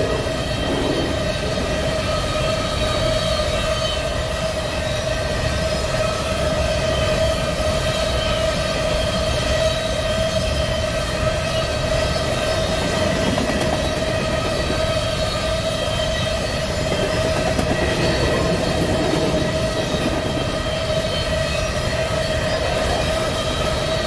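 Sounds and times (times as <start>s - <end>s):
rail rumble: 0.0s - 24.0s.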